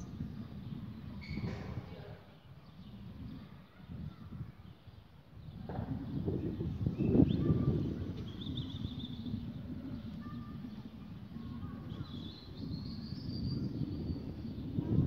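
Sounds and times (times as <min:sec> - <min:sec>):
faint bird chirps and whistles: 0:01.1 - 0:01.9, 0:06.8 - 0:09.4, 0:10.0 - 0:14.8
low outdoor rumble: 0:05.6 - 0:15.0.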